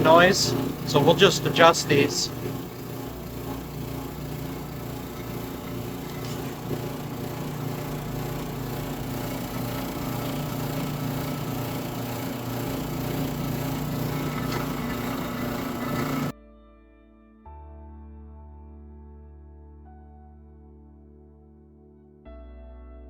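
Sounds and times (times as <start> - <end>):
dryer motor and belt humming: 0.0 - 16.3
unwanted mechanical noise: 0.0 - 16.3.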